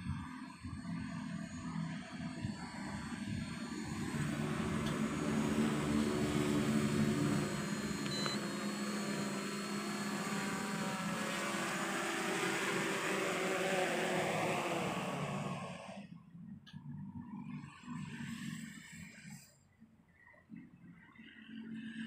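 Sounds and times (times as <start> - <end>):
drone propellers buzzing: 0.6 - 16.1.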